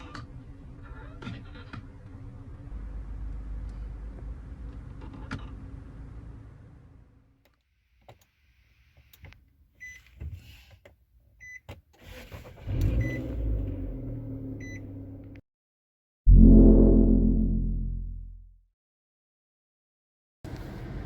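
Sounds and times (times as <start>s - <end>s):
car engine starting and idling: 12.0s - 15.4s.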